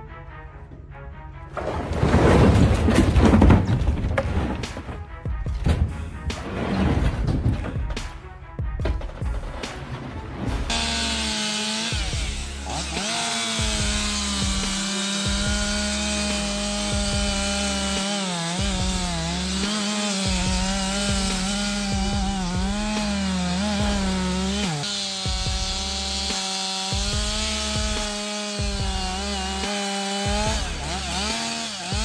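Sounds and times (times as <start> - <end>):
chainsaw cutting wood: 8.9 - 32.0.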